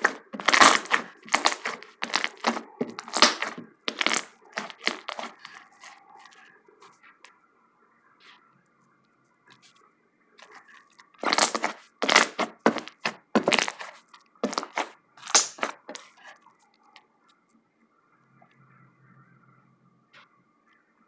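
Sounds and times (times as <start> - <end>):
slime crackling as air pops: 0.0 - 5.4, 11.2 - 16.0.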